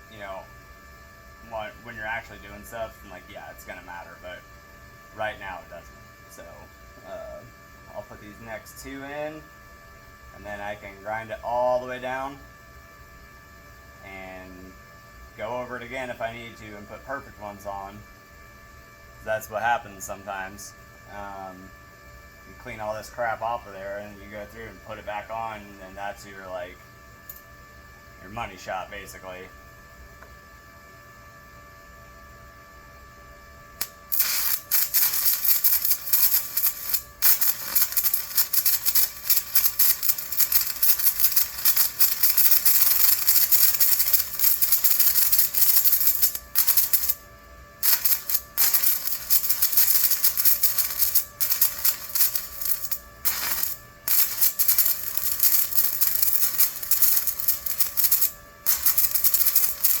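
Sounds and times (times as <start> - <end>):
welding arc crackling: 33.8 - 47.2, 47.8 - 60.0.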